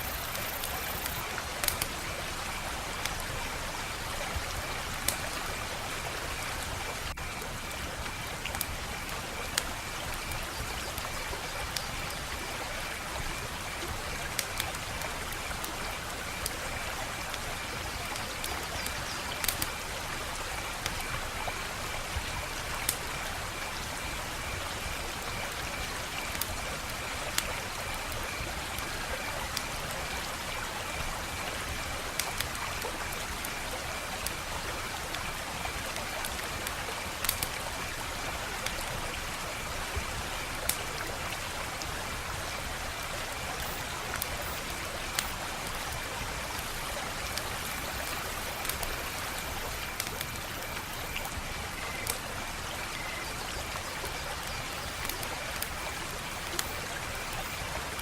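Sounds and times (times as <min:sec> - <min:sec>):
wood fire crackling: 0:00.0 - 0:03.2, 0:19.4 - 0:19.7, 0:36.0 - 0:38.1, 0:43.2 - 0:51.4, 0:54.7 - 0:58.0.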